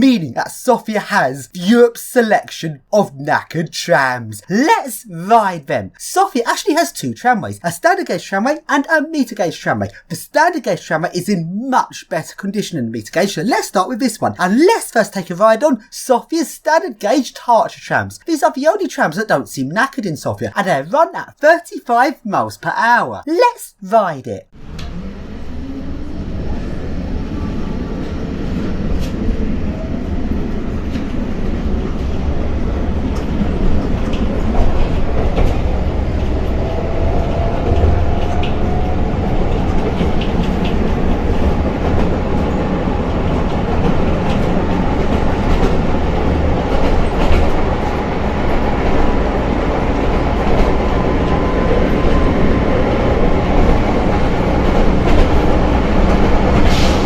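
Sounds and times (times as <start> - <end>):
tram rumbling on rails: 24.6 - 57.0.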